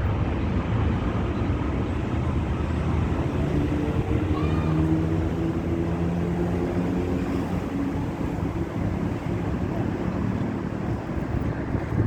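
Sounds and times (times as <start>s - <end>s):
jet engines rumbling: 0.0s - 12.0s
wind buffeting microphone: 0.0s - 12.0s.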